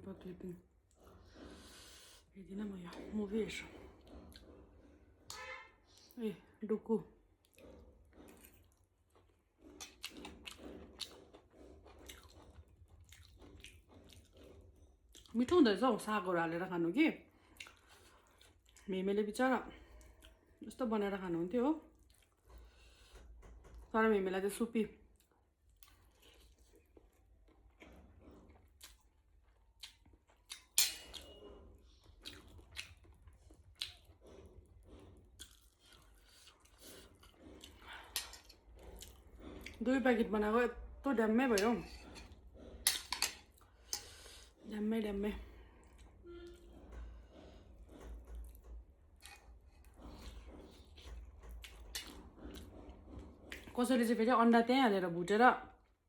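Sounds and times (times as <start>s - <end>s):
person chewing noodles: 3.8s - 5.3s, 7.2s - 15.4s, 17.4s - 18.9s, 19.8s - 20.6s, 21.9s - 23.7s, 25.1s - 39.8s, 41.6s - 44.7s, 45.4s - 53.8s.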